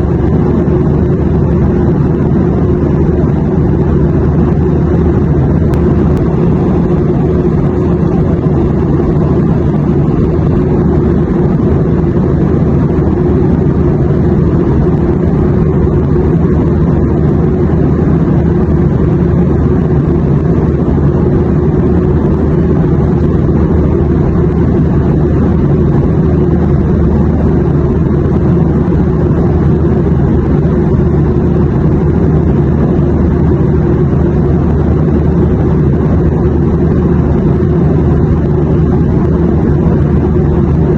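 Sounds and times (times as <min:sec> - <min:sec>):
airplane engine drone: 0:00.0 - 0:40.9.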